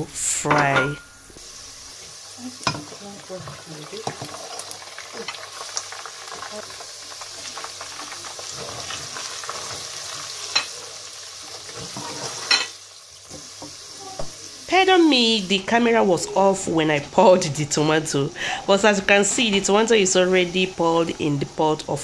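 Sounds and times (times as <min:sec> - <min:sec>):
onions sizzling in oil: 0:01.0 - 0:22.0
spatula scraping a pot: 0:11.7 - 0:12.5.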